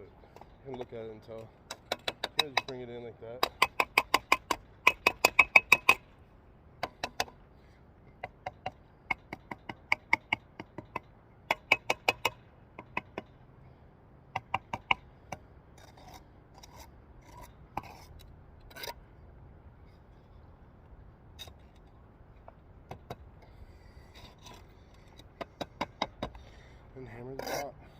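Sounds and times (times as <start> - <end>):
trowel tapping bricks: 0.3 - 2.8, 3.4 - 6.0, 6.8 - 7.4, 8.2 - 13.3, 14.3 - 18.1, 22.5 - 26.6
trowel scraping brick and mortar: 15.8 - 19.0, 23.6 - 27.8.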